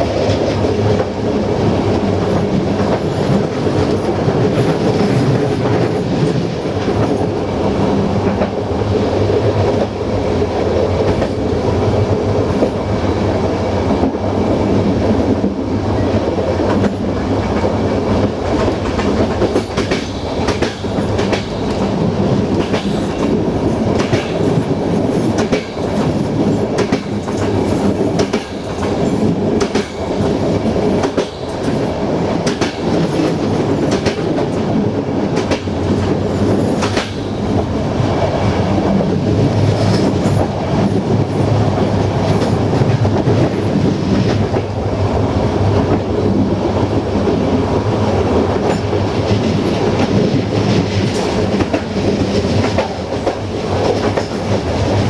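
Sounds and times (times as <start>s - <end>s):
train wheels rumbling on rails: 0.0s - 55.0s
wheels clacking over rail joints: 16.7s - 37.7s.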